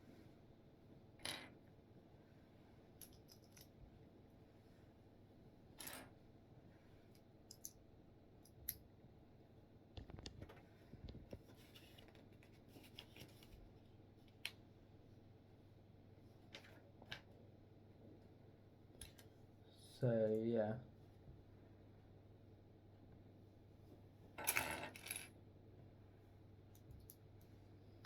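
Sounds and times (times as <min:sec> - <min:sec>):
plastic bricks clicking together: 0:07.5 - 0:07.8.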